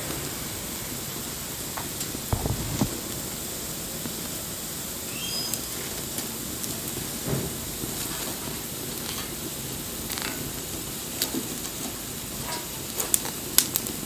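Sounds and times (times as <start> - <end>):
bonfire crackling and hissing: 0.0 - 14.0
high whistle: 5.1 - 5.6.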